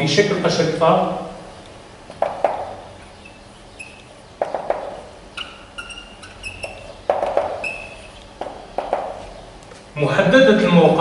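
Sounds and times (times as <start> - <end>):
chalk knocking on board: 2.2 - 2.8, 4.4 - 5.6, 6.7 - 9.4
high squeaks on board: 2.2 - 9.4.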